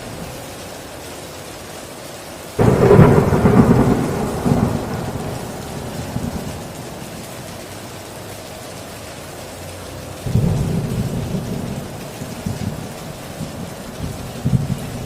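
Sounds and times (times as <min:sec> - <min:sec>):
heavy rain falling: 0:00.0 - 0:15.0
thunder rumbling: 0:02.6 - 0:07.8, 0:10.2 - 0:15.0.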